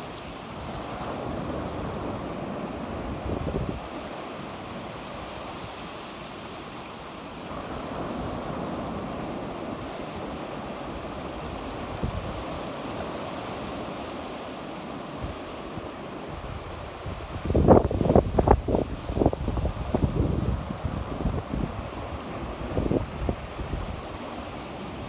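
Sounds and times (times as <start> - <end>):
sea waves washing on shore: 0.0 - 25.0
wind buffeting microphone: 11.0 - 12.9, 15.2 - 25.0.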